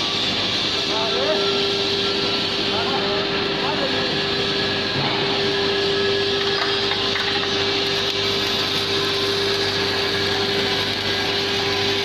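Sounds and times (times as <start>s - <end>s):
steady mid-pitched machine tone: 0.0s - 7.1s
machinery hum: 0.0s - 12.0s
welding arc sizzling: 0.0s - 12.0s.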